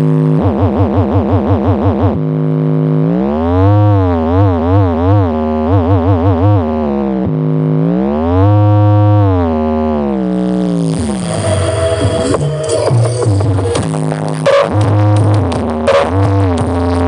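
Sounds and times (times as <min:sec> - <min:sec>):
deep pulsing bass: 0:00.0 - 0:17.0
electronic tone sliding in pitch: 0:10.7 - 0:16.3.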